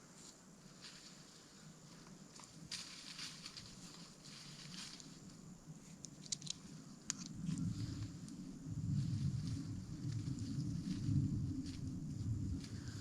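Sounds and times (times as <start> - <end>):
low rumble: 7.3 - 13.0.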